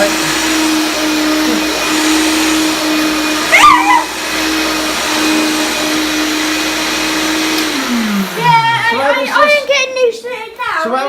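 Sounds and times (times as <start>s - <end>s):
vacuum cleaner motor hum: 0.0s - 10.0s
short high cry: 3.5s - 4.2s.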